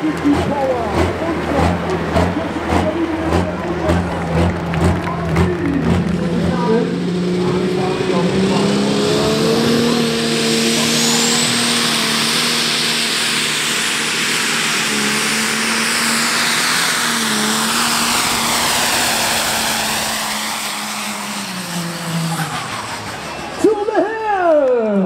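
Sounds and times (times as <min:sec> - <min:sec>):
tractor engine running flat out: 0:00.0 - 0:25.0
high turbo whistle: 0:07.1 - 0:24.1.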